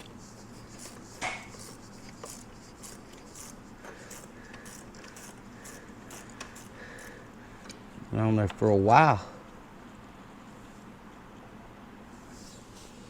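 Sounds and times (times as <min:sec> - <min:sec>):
hand tools clicking and scraping: 0:00.0 - 0:07.2.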